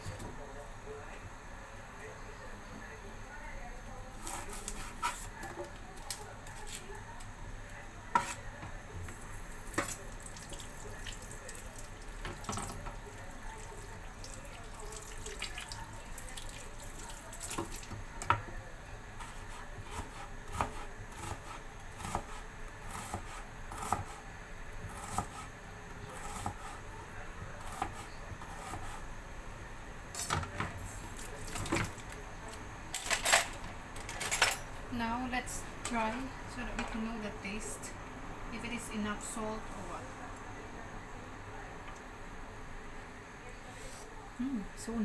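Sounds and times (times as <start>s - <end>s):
soup boiling and bubbling: 9.2s - 18.0s.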